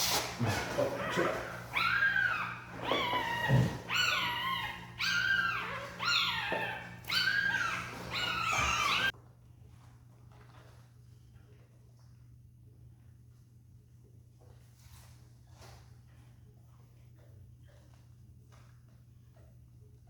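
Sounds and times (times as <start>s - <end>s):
newborn puppies crying: 0.4s - 9.1s.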